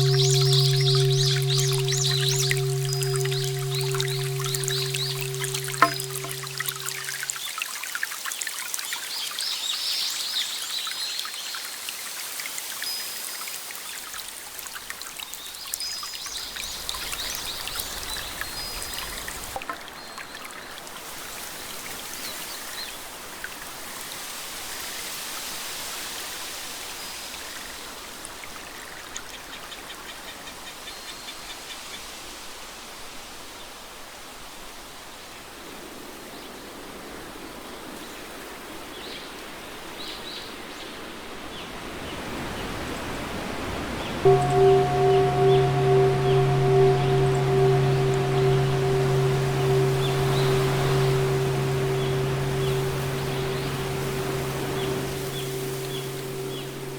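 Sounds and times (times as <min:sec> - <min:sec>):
water trickling: 0:00.0 - 0:07.4, 0:44.3 - 0:56.9.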